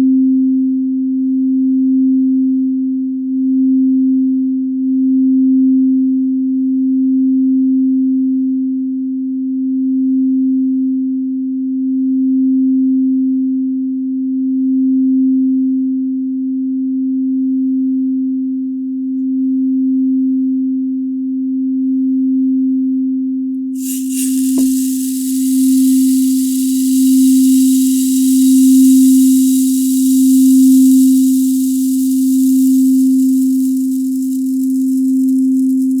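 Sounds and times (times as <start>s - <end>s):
hiss: 23.8s - 36.0s
singing bowl low tone: 23.8s - 36.0s.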